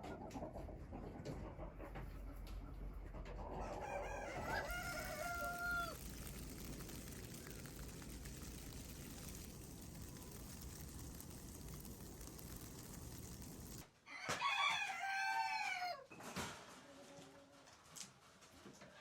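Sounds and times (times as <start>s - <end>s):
faint chicken calls: 0.0s - 16.2s
rooster crowing: 3.6s - 6.4s, 14.1s - 16.1s.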